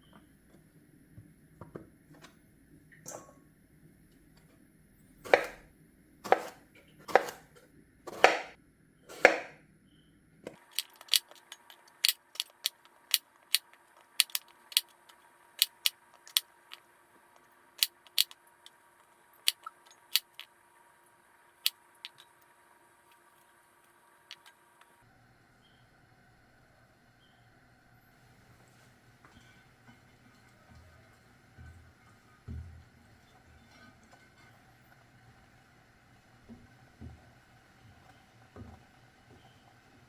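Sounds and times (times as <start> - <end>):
knife chopping on cutting board: 5.3 - 5.6, 6.2 - 7.5, 8.1 - 9.6.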